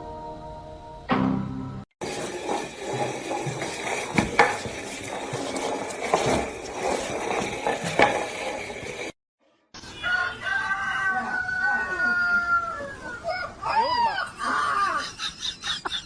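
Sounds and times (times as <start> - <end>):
scraping and rustling: 2.0 - 9.2.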